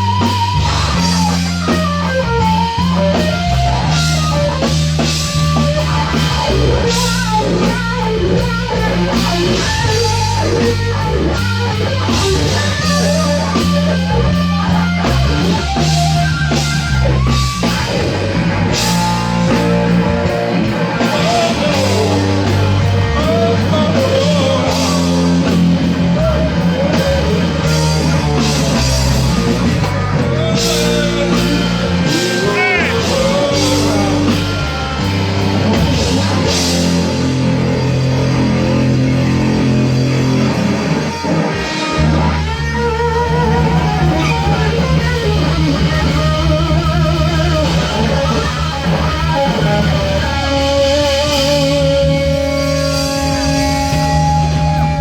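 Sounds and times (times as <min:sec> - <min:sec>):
bass line: 0:00.0 - 0:55.0
drum kit with cymbals: 0:00.0 - 0:55.0
electric guitar lead: 0:00.0 - 0:55.0.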